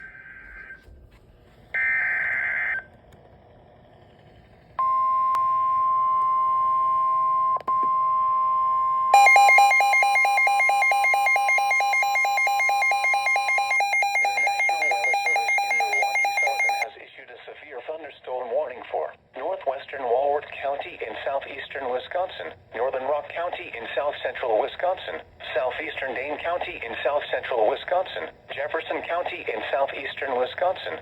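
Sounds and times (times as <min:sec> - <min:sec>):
rapidly pulsing alarm beep: 0:01.8 - 0:02.9, 0:04.8 - 0:16.9
steady warning alarm tone: 0:01.8 - 0:02.9, 0:04.8 - 0:16.9.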